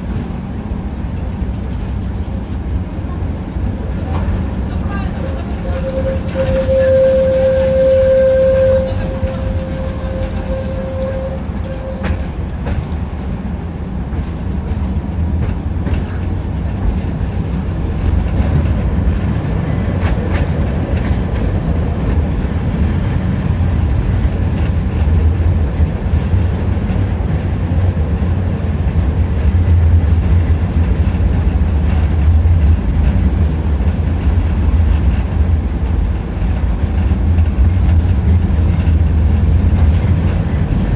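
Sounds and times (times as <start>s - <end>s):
tram rumbling on rails: 0.0s - 40.9s
high whine: 5.2s - 12.3s.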